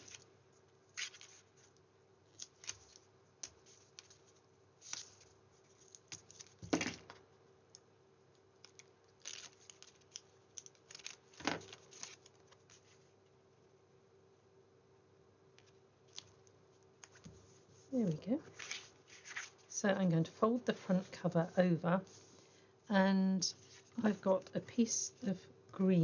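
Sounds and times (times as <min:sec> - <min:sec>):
paper being handled and folded: 0:00.0 - 0:06.8, 0:08.6 - 0:13.2, 0:15.6 - 0:19.8.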